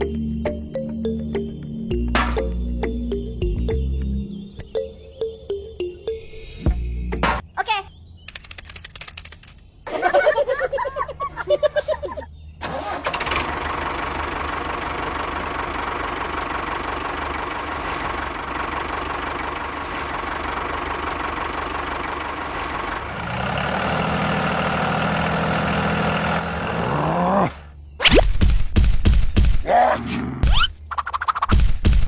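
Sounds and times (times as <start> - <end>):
vehicle motor running: 12.6 - 27.8.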